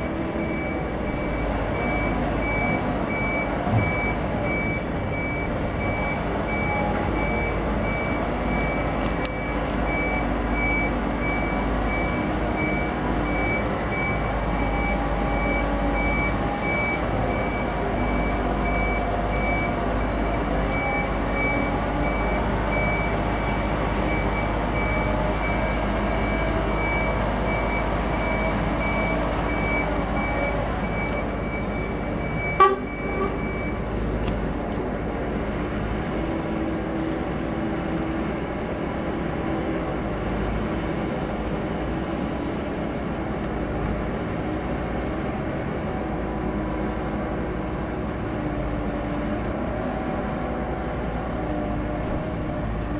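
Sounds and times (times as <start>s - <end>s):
reversing alarm beeping: 0.3s - 33.9s.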